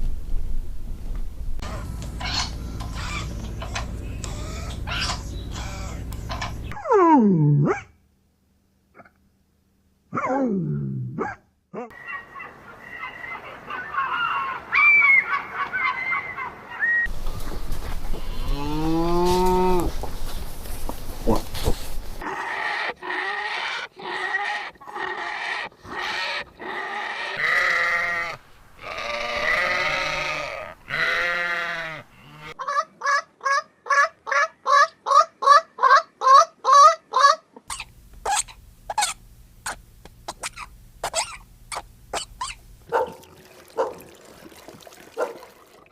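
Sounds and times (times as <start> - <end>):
livestock bleating: 18.2 - 19.9, 27.3 - 32.6.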